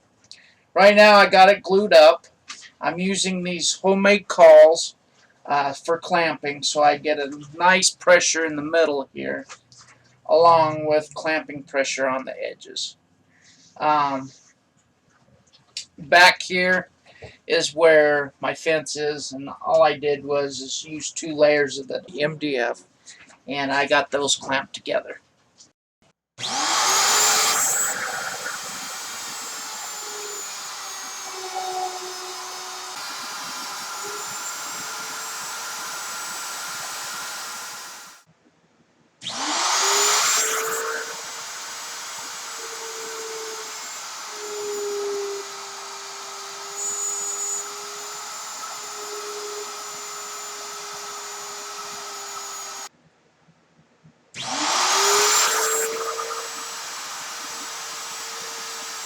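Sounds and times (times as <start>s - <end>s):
electric motor whining: 26.4s - 38.2s, 39.2s - 52.9s, 54.4s - 59.0s.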